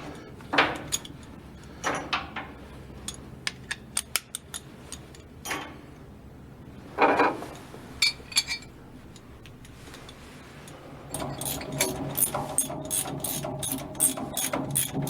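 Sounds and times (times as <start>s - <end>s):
ratchet wrench clicking: 11.2s - 15.0s.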